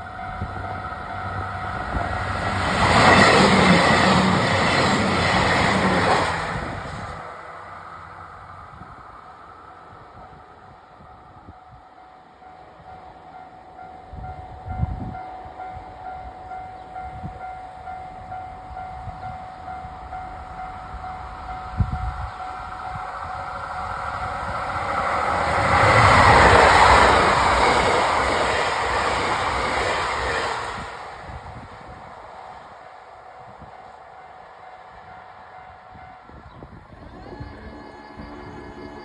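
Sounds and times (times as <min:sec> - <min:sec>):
express train passing: 0:00.0 - 0:39.0
level crossing alarm ringing: 0:35.1 - 0:39.0.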